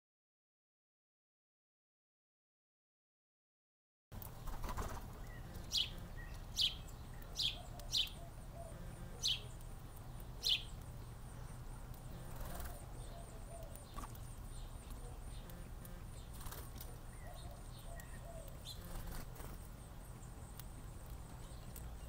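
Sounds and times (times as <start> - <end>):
bird chirping: 4.2 - 22.0
high-pitched repeating bird call: 5.4 - 6.8.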